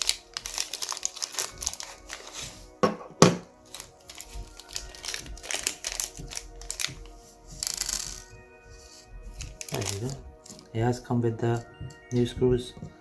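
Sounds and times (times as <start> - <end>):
plastic packaging crinkling: 0.0 - 2.8, 3.6 - 10.8
background music: 0.0 - 13.0.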